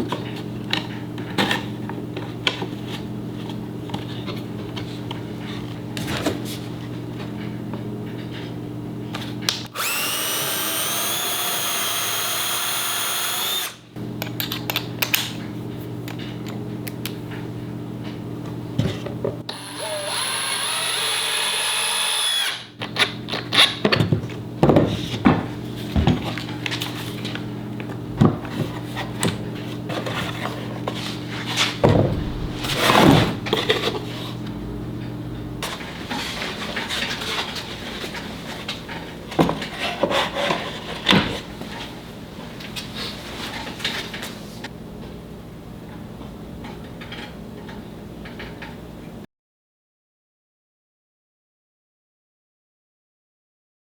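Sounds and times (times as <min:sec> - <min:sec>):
power drill whining: 0:09.7 - 0:13.8, 0:19.5 - 0:22.7
steady low hum: 0:31.8 - 0:35.7.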